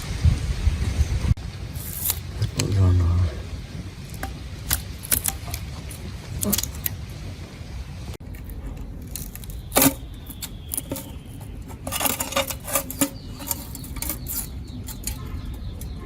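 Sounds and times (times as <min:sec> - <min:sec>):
metal tools clinking and tapping: 0:08.3 - 0:16.0.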